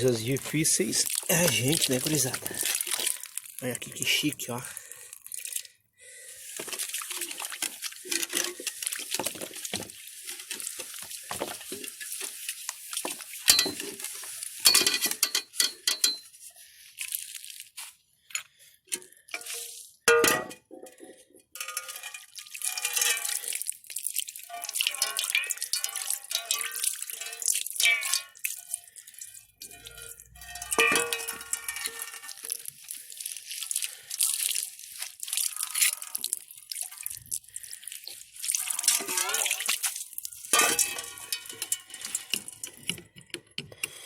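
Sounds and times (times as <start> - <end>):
dishes and pots clattering: 8.1 - 9.9, 13.4 - 16.3, 19.4 - 23.4, 24.5 - 28.4, 29.6 - 32.4, 40.5 - 44.0.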